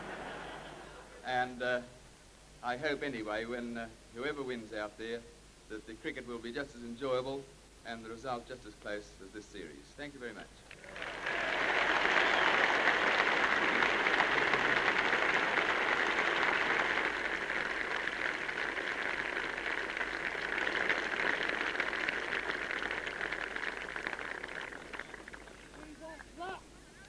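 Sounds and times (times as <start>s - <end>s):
large crowd applauding: 0.0s - 1.2s, 10.7s - 26.5s.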